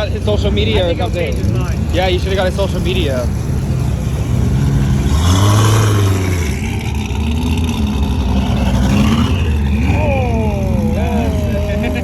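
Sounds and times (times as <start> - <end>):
car engine exhaust rumble: 0.0 - 12.0.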